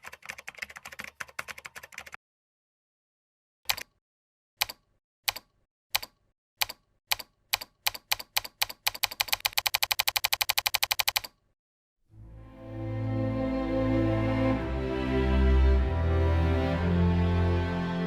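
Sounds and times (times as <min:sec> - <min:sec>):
soft music: 0:12.2 - 0:18.0.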